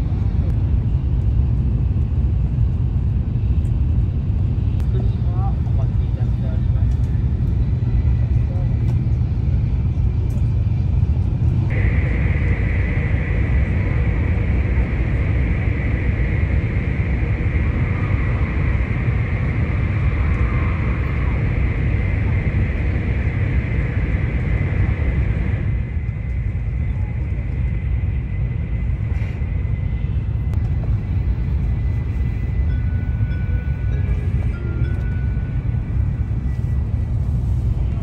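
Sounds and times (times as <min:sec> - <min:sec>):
train cabin rumble: 0:00.0 - 0:38.0
tunnel hiss: 0:11.7 - 0:26.7
faint high whine: 0:11.7 - 0:38.0.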